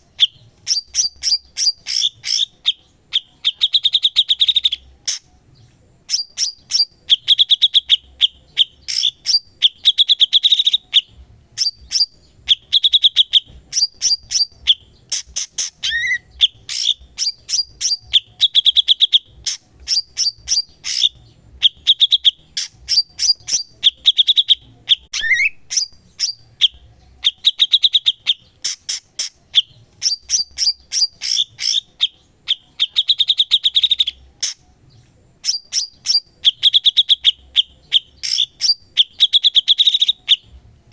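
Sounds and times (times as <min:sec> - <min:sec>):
bird singing chattering trills: 0:00.0 - 0:40.5.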